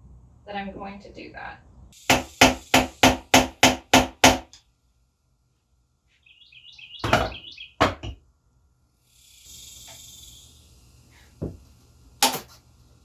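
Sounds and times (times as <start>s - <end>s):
hammer striking metal: 2.1s - 4.5s.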